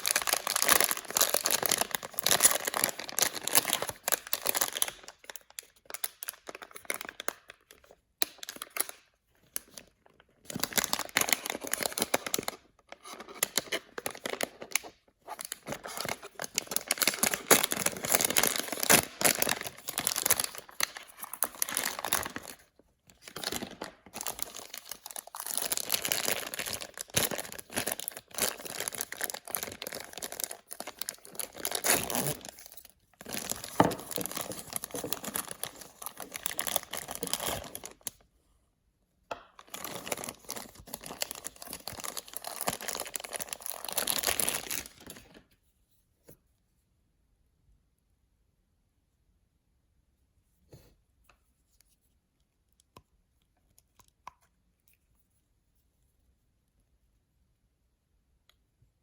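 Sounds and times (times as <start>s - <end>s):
packaging crinkling and tearing: 0.0s - 38.2s, 39.5s - 45.5s.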